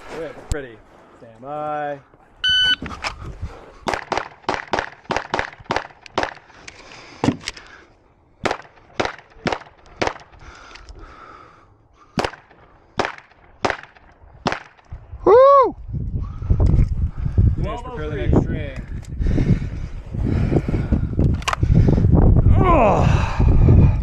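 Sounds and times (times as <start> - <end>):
pistol shots: 3.8 - 6.4, 12.2 - 14.8.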